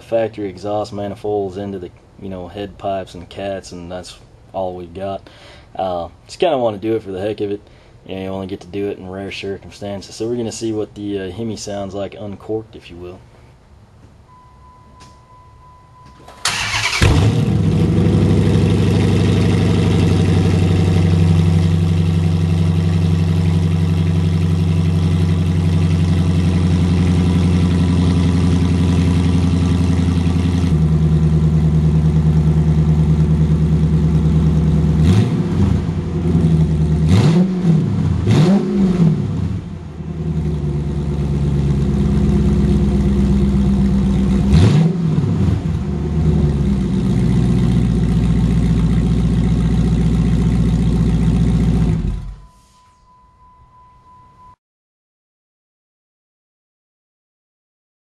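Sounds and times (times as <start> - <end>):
unmuffled car engine idling and revving: 16.7 - 54.5.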